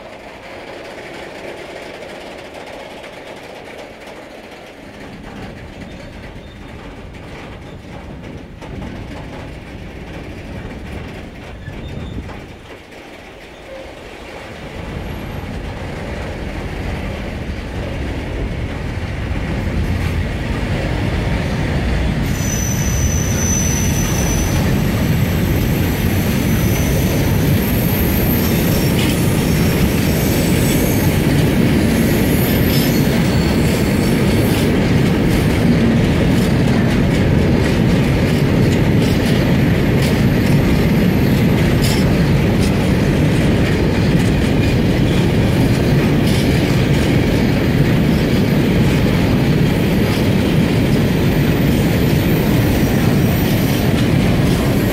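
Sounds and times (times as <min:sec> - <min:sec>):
train wagons rumbling past: 0:00.0 - 0:54.9
high wheel squeal: 0:22.2 - 0:34.1.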